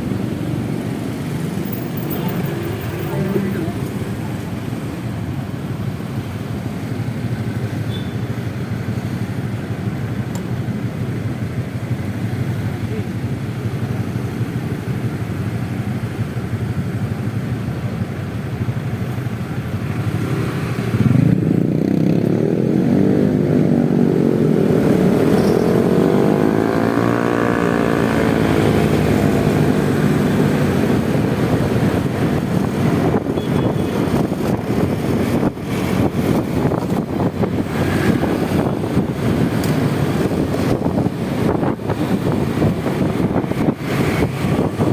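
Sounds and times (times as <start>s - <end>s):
road noise: 0.0s - 44.9s.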